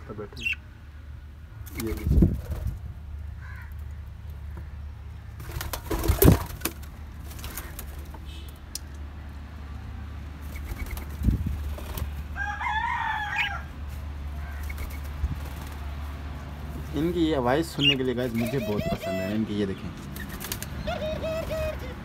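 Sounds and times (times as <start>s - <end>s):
wavering bird call: 17.8s - 19.4s, 20.8s - 22.0s.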